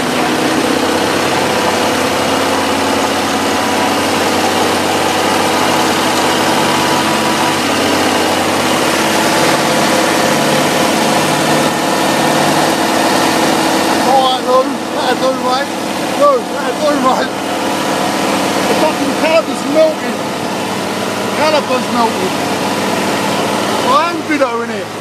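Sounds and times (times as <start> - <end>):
car engine running: 0.0 - 25.0.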